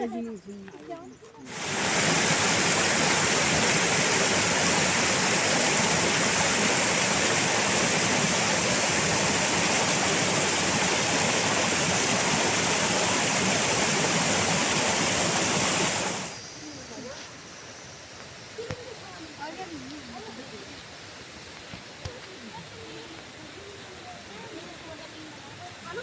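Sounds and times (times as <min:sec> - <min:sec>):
water rushing: 0:01.5 - 0:16.5.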